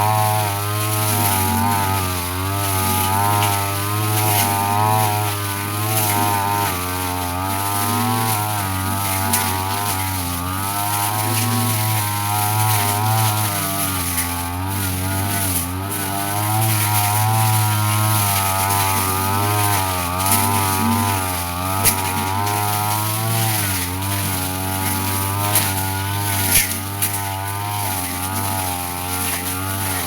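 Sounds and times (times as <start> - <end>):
brush cutter engine cutting grass: 0.0 - 30.0.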